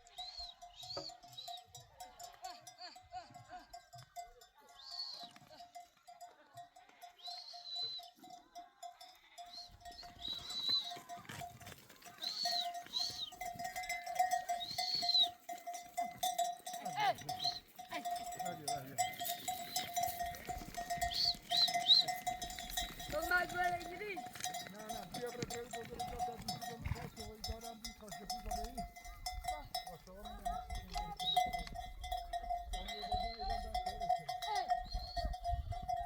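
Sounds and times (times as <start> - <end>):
animal neck bells clinking: 0.0 - 36.0
animals shuffling: 9.5 - 34.2.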